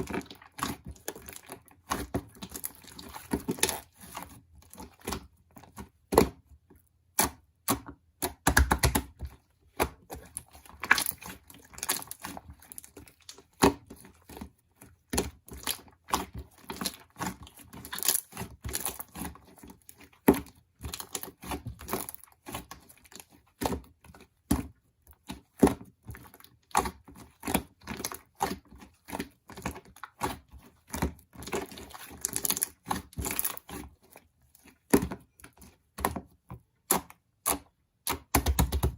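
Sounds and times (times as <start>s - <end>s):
slime squished by hand: 7.0s - 23.8s, 25.3s - 36.1s.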